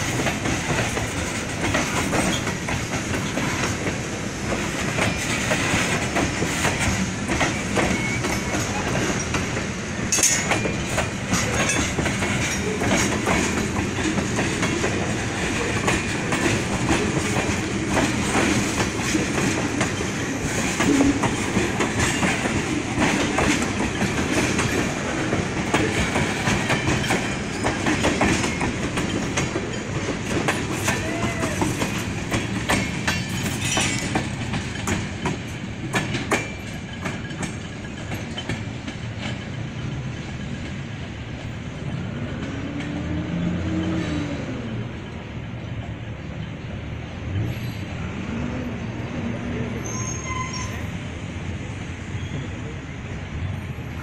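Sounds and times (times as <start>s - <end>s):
train wheels clicking on rails: 0.0s - 54.0s
faint wheel squeals: 49.8s - 50.9s, 52.2s - 52.6s.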